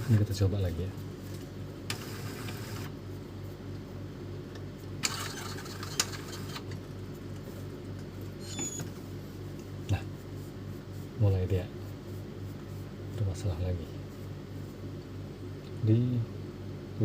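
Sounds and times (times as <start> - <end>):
printer motor hum: 1.5 - 3.4, 4.3 - 9.5.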